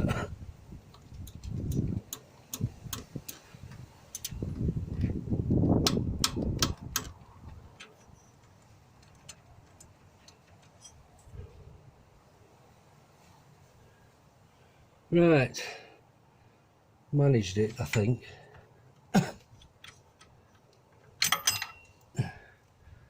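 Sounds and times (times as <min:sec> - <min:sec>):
low rumbling handling noise: 0:00.0 - 0:12.1
hand tools clicking on metal: 0:00.9 - 0:03.5, 0:04.1 - 0:04.4, 0:05.8 - 0:11.0, 0:19.4 - 0:22.1.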